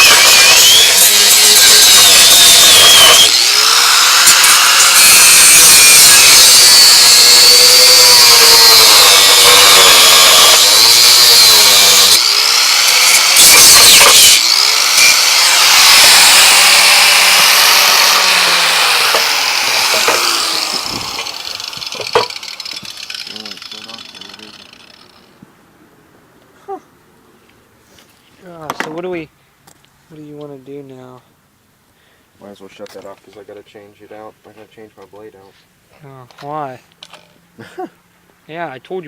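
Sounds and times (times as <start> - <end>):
angle grinder grinding metal: 0.0 - 25.4.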